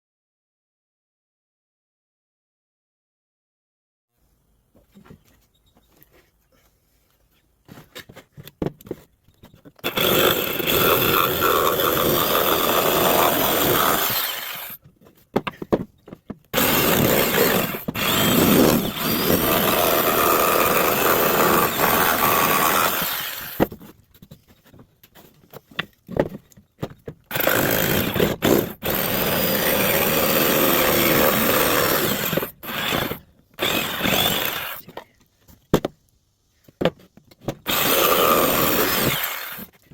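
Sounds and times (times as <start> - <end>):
power tool working wood: 9.8 - 14.8, 16.6 - 23.7, 27.3 - 34.9, 37.7 - 39.7.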